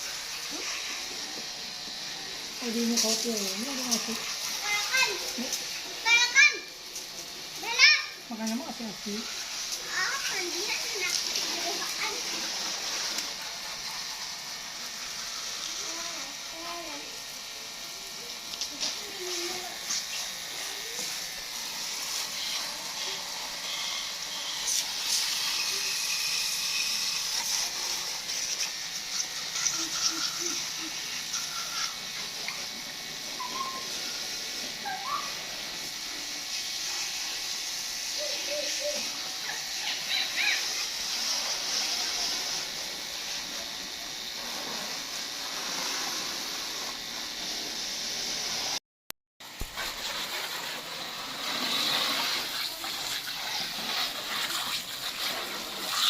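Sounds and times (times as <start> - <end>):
water spraying hiss: 0.0 - 48.8, 49.4 - 56.0
high chirps and squeaks: 33.4 - 33.9.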